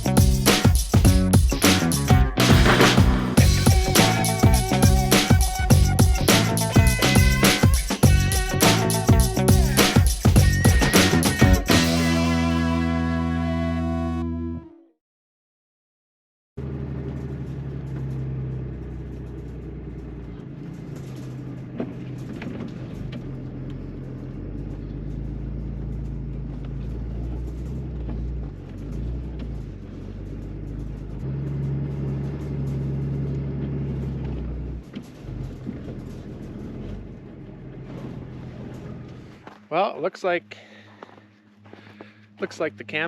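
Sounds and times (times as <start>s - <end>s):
pickup truck engine running: 0.0s - 13.2s, 16.6s - 39.7s
sharp knocks: 2.4s - 3.7s.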